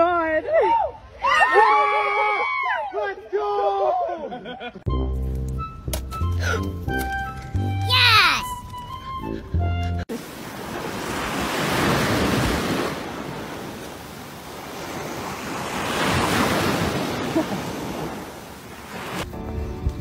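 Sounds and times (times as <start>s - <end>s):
ocean surf washing up: 10.1s - 19.3s.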